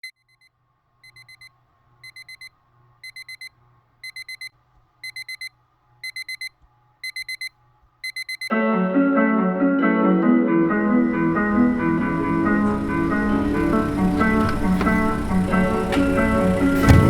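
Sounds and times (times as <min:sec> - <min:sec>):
electronic alarm beeping: 0:00.0 - 0:08.5.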